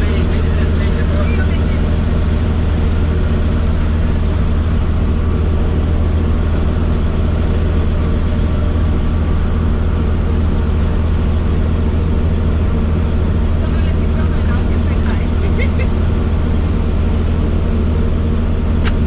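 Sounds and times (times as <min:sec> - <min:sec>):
helicopter engine and rotor drone: 0:00.0 - 0:19.0.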